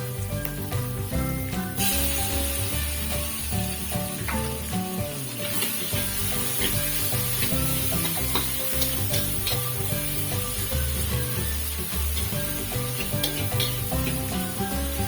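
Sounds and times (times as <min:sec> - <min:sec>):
food sizzling in oil: 0:00.0 - 0:15.0
spatula clicking and scraping: 0:05.4 - 0:15.0.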